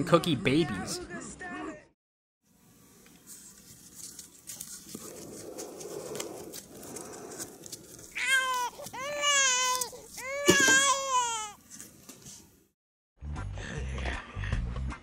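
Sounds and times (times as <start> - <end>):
high wailing cries: 8.1 - 11.6.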